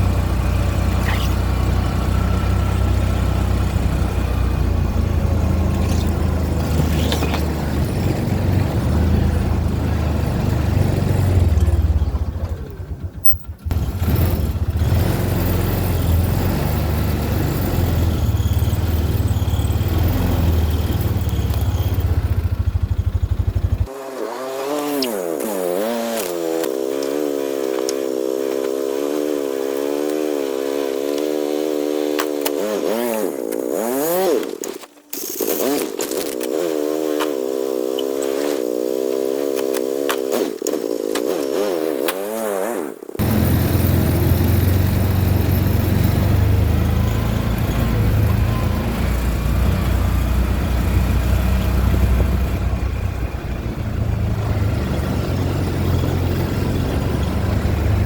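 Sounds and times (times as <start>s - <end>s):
low engine rumble: 0.0s - 23.9s, 43.2s - 58.0s
chainsaw running: 0.0s - 58.0s.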